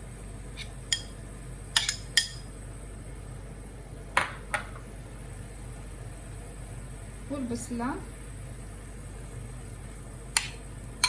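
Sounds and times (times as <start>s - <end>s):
utensils clinking against cookware: 1.8s - 2.4s.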